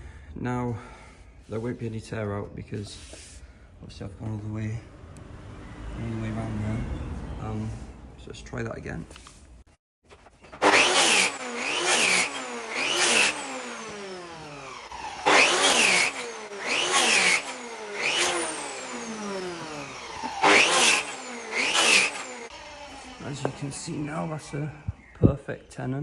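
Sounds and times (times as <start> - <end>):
power saw cutting wood: 10.5 - 25.0.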